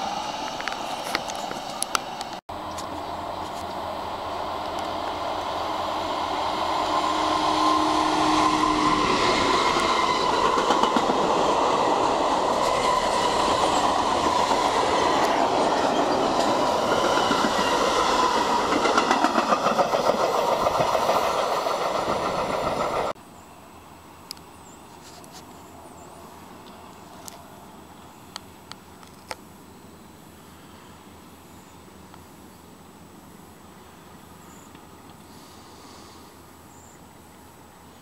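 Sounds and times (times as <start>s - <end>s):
freight train wheels clattering: 7.4s - 23.2s.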